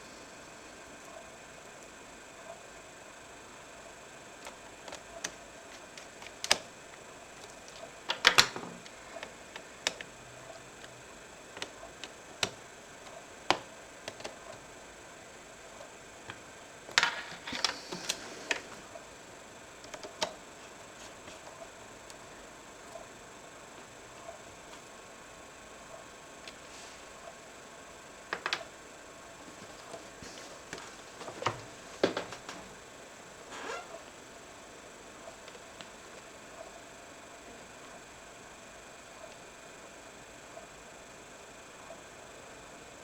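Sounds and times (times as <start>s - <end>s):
clicks of handled casing parts: 4.4s - 14.7s, 16.2s - 19.0s, 19.8s - 22.2s, 28.3s - 28.7s.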